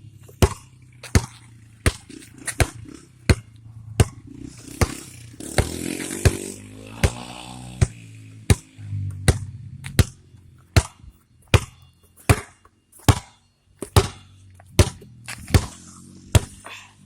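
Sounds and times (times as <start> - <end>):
low engine hum: 0.0 - 12.2.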